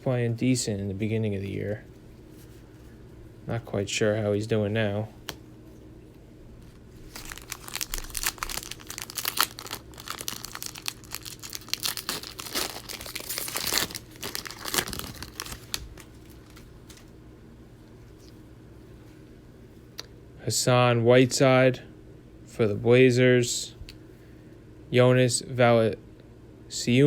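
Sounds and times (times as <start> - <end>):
plastic wrapper tearing and crinkling: 7.0 - 17.1.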